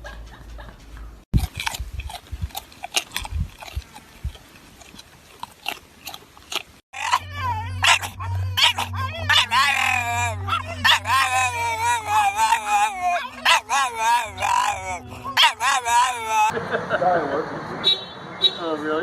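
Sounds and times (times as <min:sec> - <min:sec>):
dog chewing: 0:01.3 - 0:16.5
dog whining: 0:07.0 - 0:16.5.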